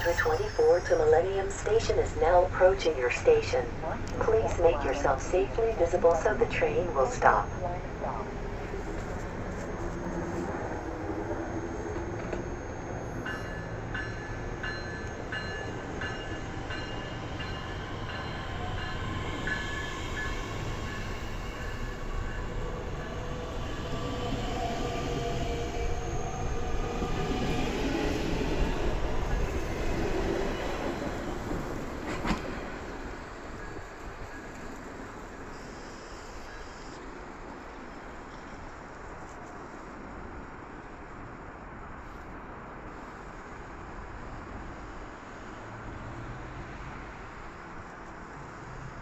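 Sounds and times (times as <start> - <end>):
high ringing: 0.0 - 2.1
train rumbling into station: 0.0 - 49.0.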